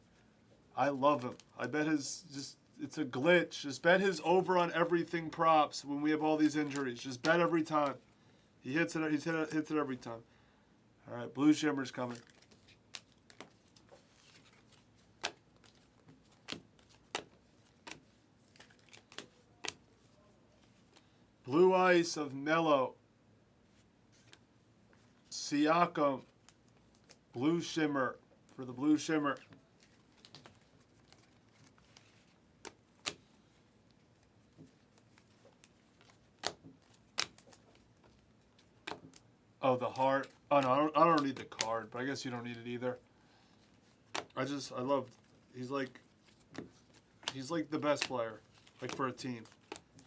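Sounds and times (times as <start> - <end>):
trading cards clicking and snapping: 12.1 - 19.8, 32.6 - 33.2, 34.6 - 39.2, 40.2 - 41.8, 45.8 - 50.0
trading cards snapping and clicking: 16.3 - 18.0, 18.6 - 19.8, 36.4 - 37.6, 40.6 - 41.7, 48.7 - 49.8.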